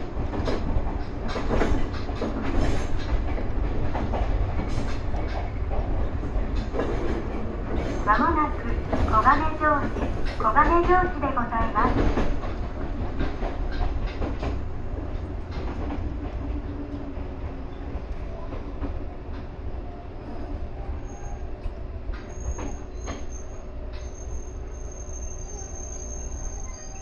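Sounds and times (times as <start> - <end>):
train rumbling on rails: 0.0 - 27.0
high steady squeal: 22.3 - 27.0.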